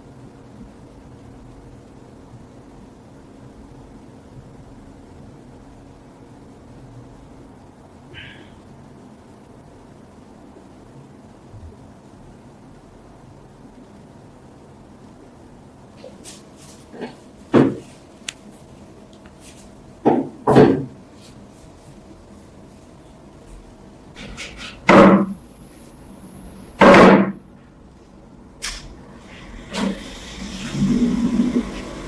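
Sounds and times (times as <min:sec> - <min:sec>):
knocks and clunks: 0:17.5 - 0:17.9.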